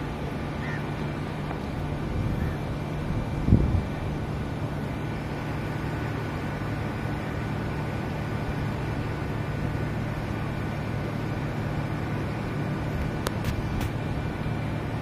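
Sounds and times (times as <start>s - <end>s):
train humming and rumbling: 0.0s - 15.0s.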